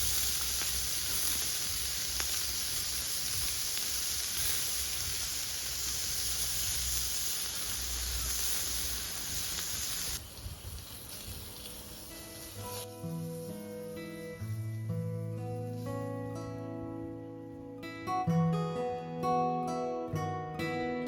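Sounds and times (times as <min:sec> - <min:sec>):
faint crackles: 0:00.0 - 0:16.2
fire pit sizzling hiss: 0:00.0 - 0:16.6.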